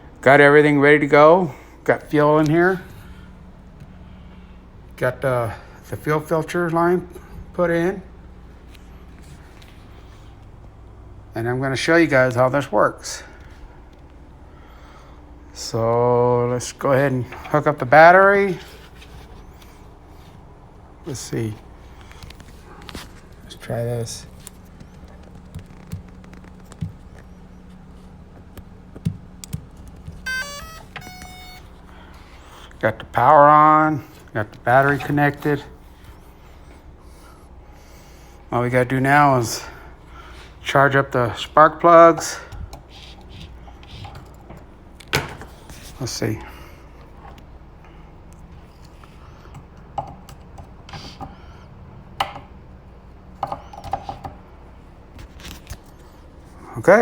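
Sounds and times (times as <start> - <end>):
low steady hum: 0.0 - 57.0
connectors clicking and knocking: 24.2 - 32.8, 42.1 - 45.8, 48.3 - 51.4, 52.1 - 52.6, 53.3 - 54.5
electronic beeps stepping in pitch: 30.3 - 31.8.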